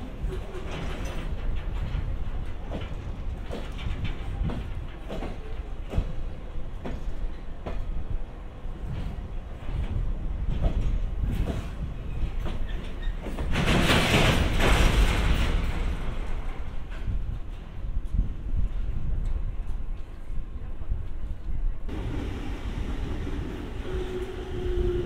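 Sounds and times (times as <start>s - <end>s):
train wheels clacking over rail joints: 0.2s - 8.1s, 8.8s - 17.7s.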